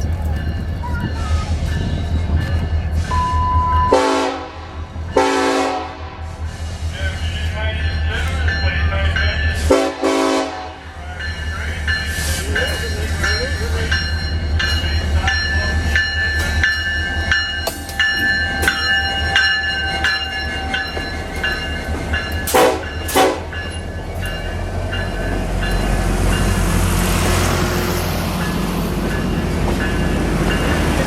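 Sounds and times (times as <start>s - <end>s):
locomotive bell ringing: 0.0s - 4.0s, 6.4s - 26.8s, 27.7s - 31.0s
train rolling noise: 0.0s - 31.0s
train horn toots: 3.1s - 6.3s, 9.7s - 10.9s, 22.5s - 23.6s.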